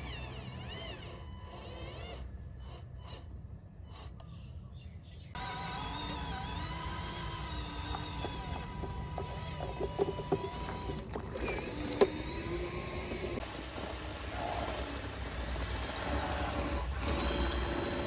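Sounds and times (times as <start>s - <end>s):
electric motors whining: 0.0s - 4.4s, 5.4s - 18.0s
sharp clicks and knocks: 7.8s - 13.5s.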